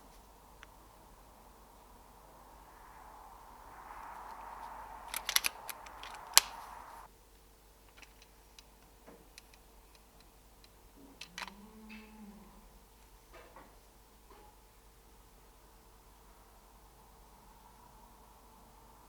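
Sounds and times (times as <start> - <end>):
suppressed air rifle shot: 2.0 - 7.1
air rifle action clicks: 3.8 - 7.0.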